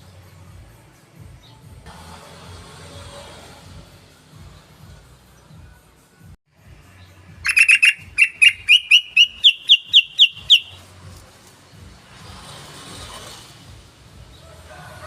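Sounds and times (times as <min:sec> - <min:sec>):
bulbul calling: 0:07.4 - 0:10.8.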